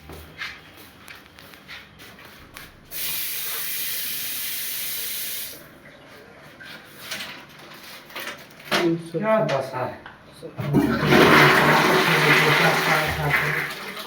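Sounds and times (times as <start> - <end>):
water spraying under pressure: 2.9 - 5.6.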